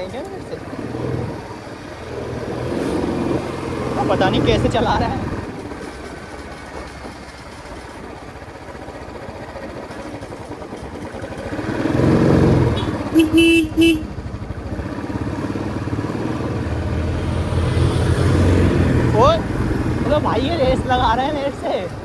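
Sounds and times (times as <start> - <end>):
motorcycle engine running: 0.0 - 22.0
vehicle horn honks: 12.8 - 14.2.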